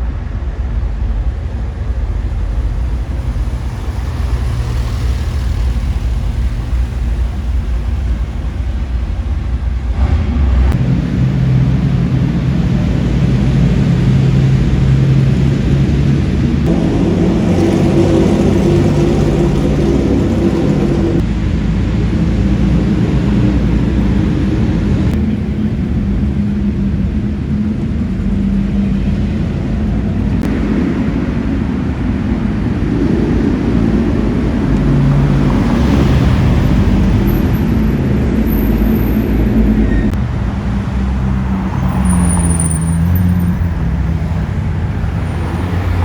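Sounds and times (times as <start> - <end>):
car engines running: 0.0 - 46.0
road and traffic rumble: 0.0 - 46.0.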